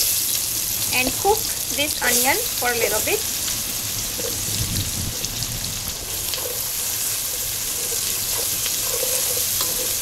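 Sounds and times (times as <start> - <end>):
onion sizzling in oil: 0.0 - 10.0
wooden spoon stirring: 6.3 - 10.0.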